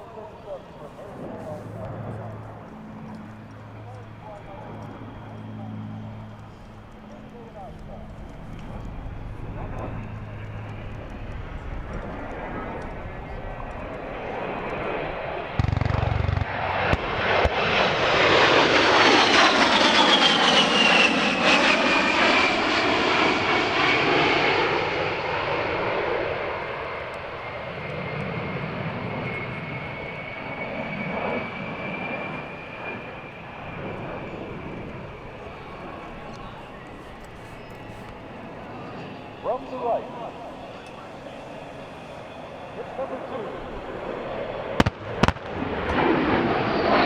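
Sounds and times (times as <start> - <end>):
propeller aircraft engines passing: 0.0 - 47.0.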